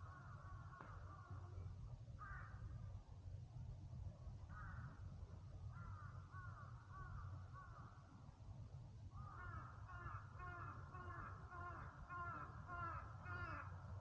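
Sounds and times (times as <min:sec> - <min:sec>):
crows cawing: 0:00.0 - 0:01.4, 0:02.2 - 0:02.6, 0:04.5 - 0:05.0, 0:05.7 - 0:07.9, 0:09.2 - 0:13.8.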